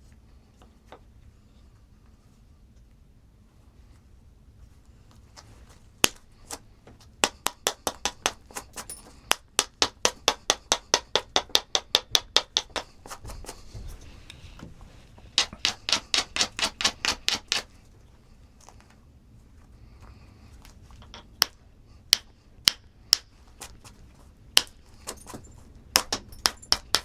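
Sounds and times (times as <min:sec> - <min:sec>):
hammer tapping on stone: 0:07.2 - 0:13.6, 0:15.4 - 0:17.7, 0:21.0 - 0:23.3, 0:24.6 - 0:27.0.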